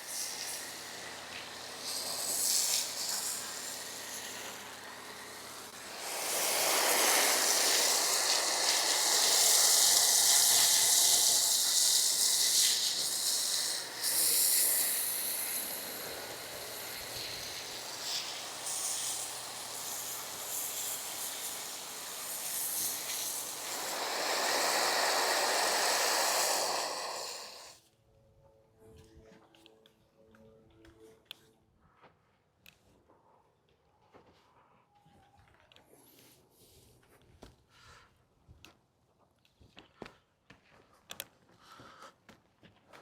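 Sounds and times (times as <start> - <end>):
pressurised jet hissing: 0.0 - 27.8.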